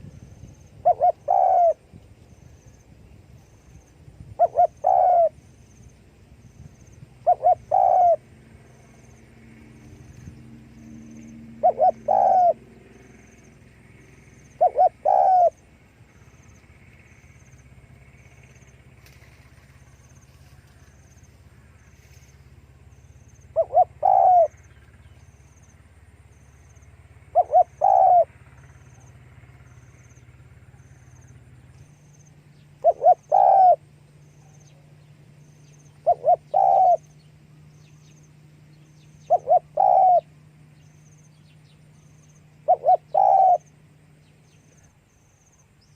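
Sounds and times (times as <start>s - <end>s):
faint steady hum: 0.0s - 45.9s
dove cooing: 0.8s - 1.8s, 4.3s - 5.4s, 7.2s - 9.1s, 10.9s - 13.2s, 14.4s - 15.6s, 23.5s - 24.7s, 27.3s - 28.3s, 32.8s - 35.0s, 35.8s - 37.3s, 39.2s - 40.4s, 42.6s - 43.8s.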